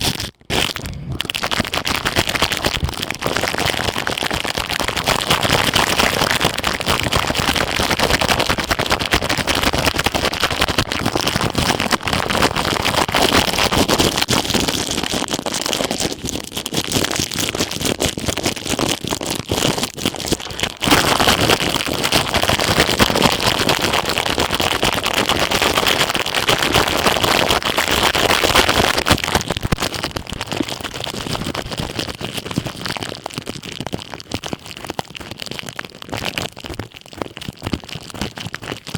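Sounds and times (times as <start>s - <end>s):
ear pick scraping plastic: 0.0s - 5.8s, 18.5s - 22.2s.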